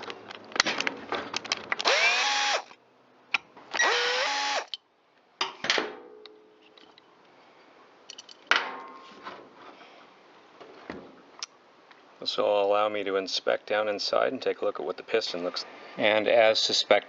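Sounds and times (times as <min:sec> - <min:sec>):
power drill motor whine: 0:01.8 - 0:02.7, 0:03.8 - 0:04.7
metal parts clinking: 0:08.1 - 0:08.5.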